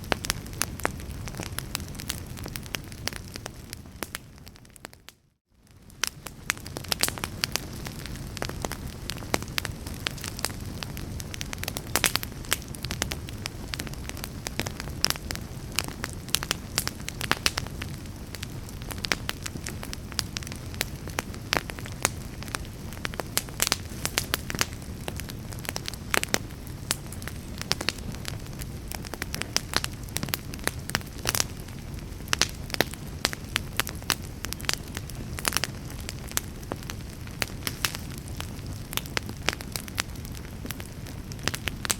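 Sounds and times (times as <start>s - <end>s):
burning logs crackling and popping: 0.0s - 41.9s
fire flames rumbling: 0.0s - 41.9s.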